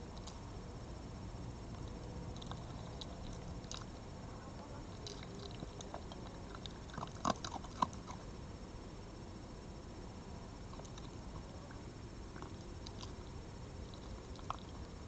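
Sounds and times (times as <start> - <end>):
animal chewing and crunching food: 1.6 - 8.4, 10.6 - 15.0.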